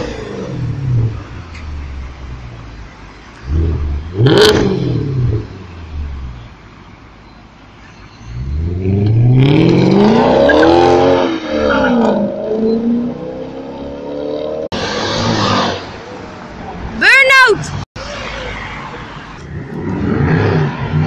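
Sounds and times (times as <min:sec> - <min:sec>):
car engine revving: 0:00.0 - 0:02.7, 0:03.3 - 0:06.5, 0:08.3 - 0:16.2, 0:18.0 - 0:21.0.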